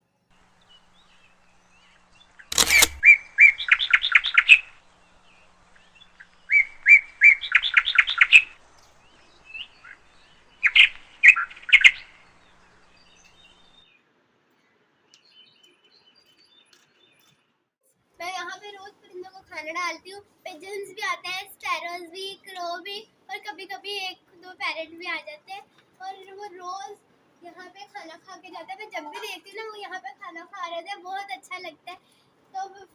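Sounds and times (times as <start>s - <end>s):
songbird chirping: 0.0s - 17.6s.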